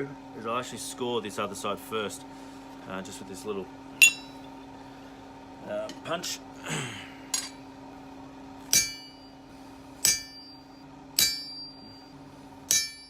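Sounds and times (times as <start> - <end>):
hammer striking metal punch: 4.0 - 4.4, 8.7 - 9.3, 10.0 - 10.6, 11.2 - 12.0, 12.7 - 13.0.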